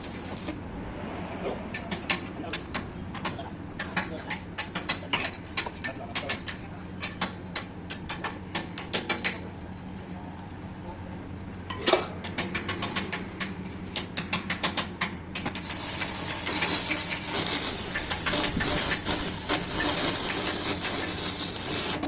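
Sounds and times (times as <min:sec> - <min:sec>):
high crackling hiss: 0:15.6 - 0:22.0.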